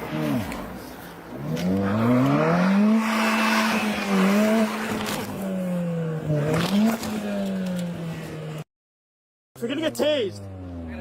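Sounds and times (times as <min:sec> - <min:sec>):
car engine revving hard: 0:01.4 - 0:07.2.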